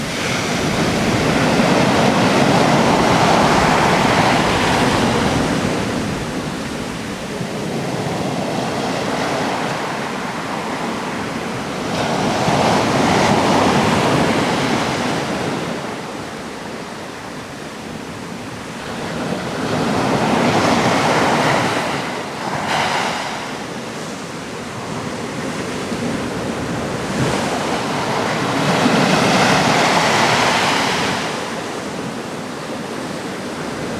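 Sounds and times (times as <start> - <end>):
waves crashing on rocks: 0.0 - 16.0
wind: 0.0 - 33.9.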